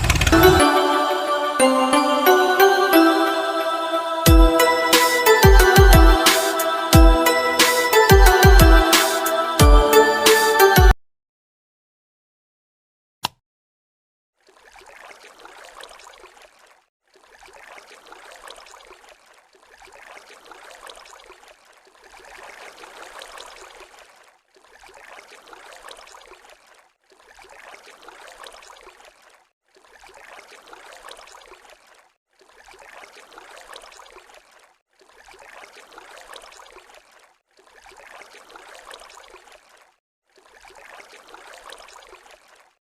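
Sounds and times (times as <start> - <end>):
water splashing trickle: 14.4 - 42.8.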